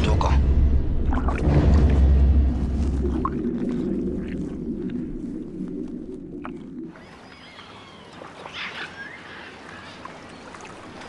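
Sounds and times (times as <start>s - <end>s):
low rumble: 0.0s - 7.0s
birds calling: 6.9s - 11.0s.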